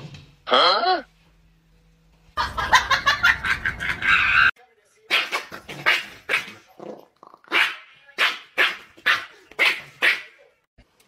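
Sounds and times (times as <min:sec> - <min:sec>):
animal giving bark-like cries: 0:03.7 - 0:04.5.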